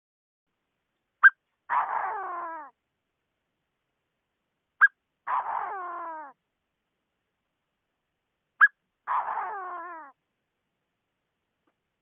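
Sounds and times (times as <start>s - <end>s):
francolin calling: 1.2s - 2.7s.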